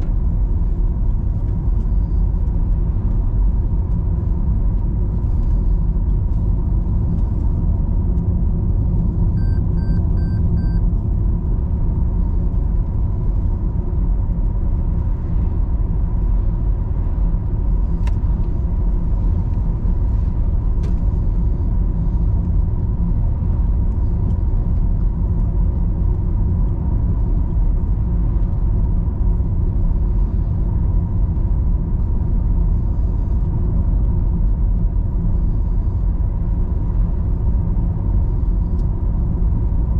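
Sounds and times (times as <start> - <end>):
car road and engine rumble: 0.0 - 39.9
high beeps: 9.4 - 10.8.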